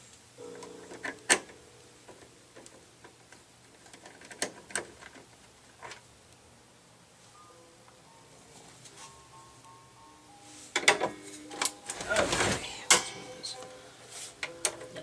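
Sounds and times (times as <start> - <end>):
metal parts clicking and knocking: 2.1 - 6.0.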